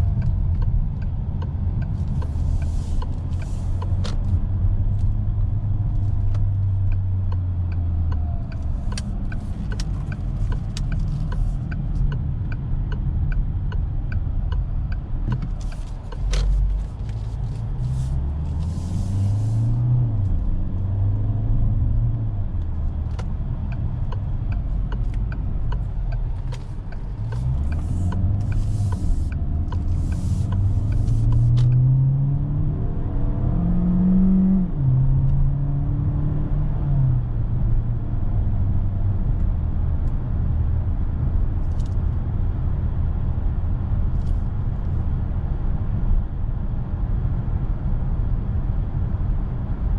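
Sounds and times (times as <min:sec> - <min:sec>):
car engine droning: 0:00.0 - 0:49.9
road rumble: 0:00.0 - 0:49.9
faint regular ticking: 0:23.2 - 0:31.5.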